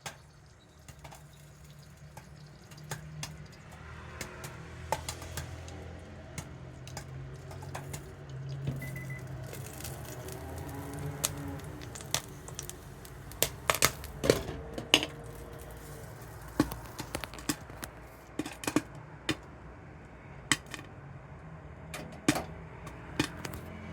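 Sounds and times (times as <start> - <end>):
popcorn popping: 0.0 - 19.4, 20.5 - 20.8, 22.0 - 23.7.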